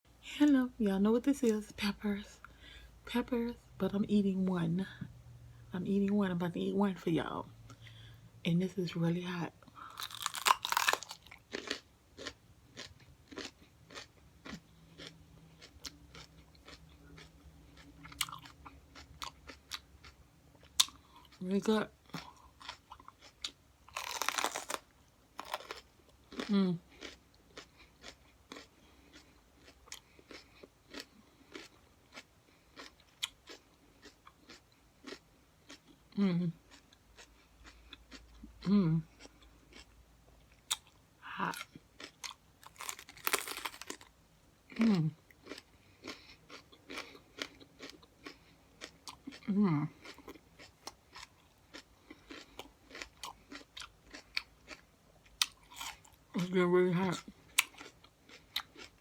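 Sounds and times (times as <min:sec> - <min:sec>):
person crunching crisp pepper: 0:09.8 - 0:21.4, 0:22.1 - 0:36.0, 0:39.2 - 0:39.9, 0:40.6 - 0:44.1, 0:44.7 - 0:59.0.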